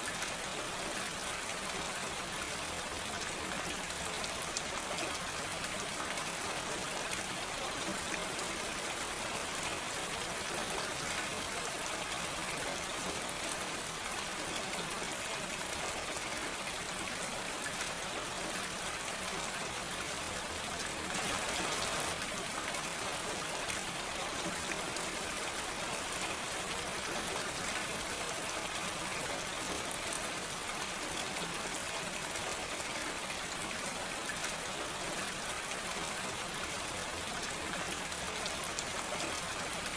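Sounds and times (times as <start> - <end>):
gentle rain: 0.0 - 39.9.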